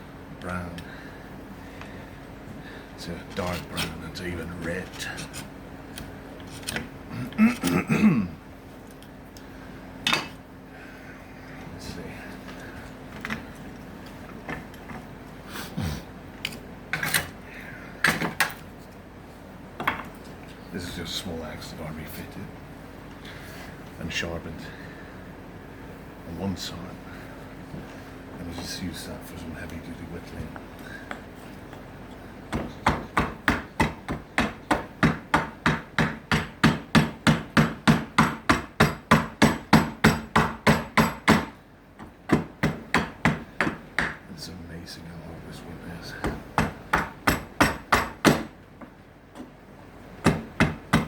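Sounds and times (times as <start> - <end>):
hand tools knocking and scraping wood: 3.0 - 5.5, 32.5 - 44.3, 46.2 - 49.6, 50.2 - 51.0
hatchet chopping wood: 32.5 - 44.3, 46.2 - 48.6, 50.2 - 51.0.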